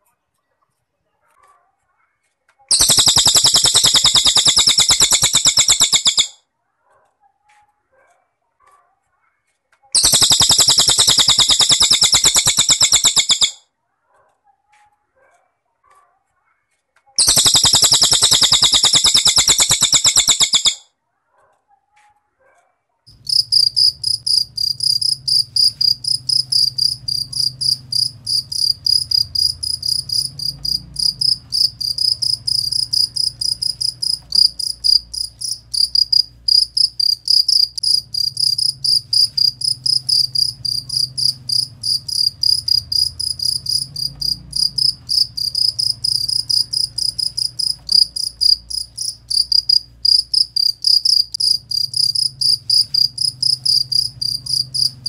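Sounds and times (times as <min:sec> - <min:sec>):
cricket chirping: 0:02.7 - 0:06.3, 0:10.0 - 0:13.6, 0:17.2 - 0:20.8, 0:23.1 - 0:55.0.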